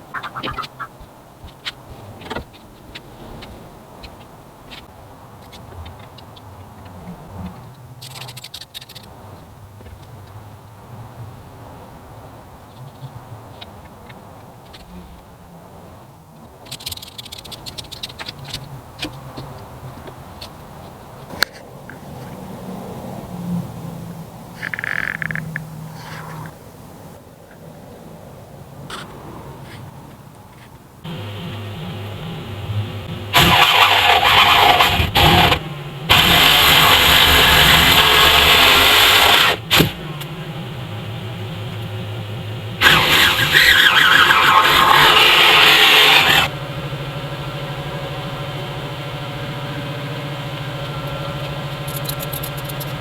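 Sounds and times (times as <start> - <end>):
vehicle engine running: 0.0 - 27.2, 30.5 - 53.0
mechanical clicks: 24.6 - 26.6, 51.0 - 53.0
low steady hum: 31.0 - 53.0.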